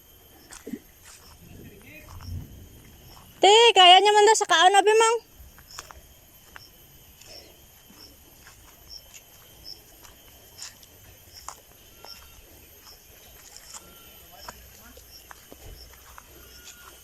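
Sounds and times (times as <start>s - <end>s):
small animal chirping: 5.6s - 6.0s, 10.6s - 17.0s.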